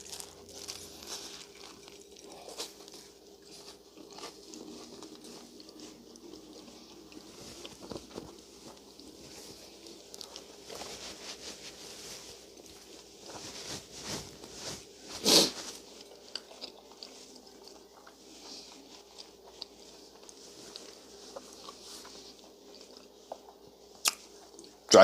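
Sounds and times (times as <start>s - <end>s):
soft chewing with crackles: 0.0s - 25.0s.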